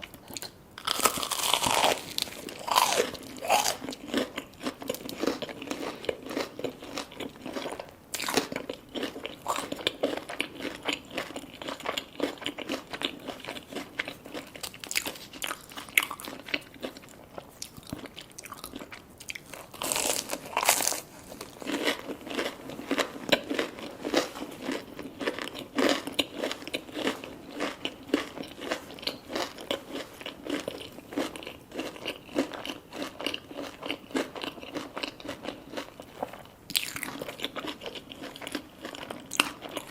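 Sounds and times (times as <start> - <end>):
chewing: 0.0 - 39.9
crunching fried food: 0.0 - 39.9.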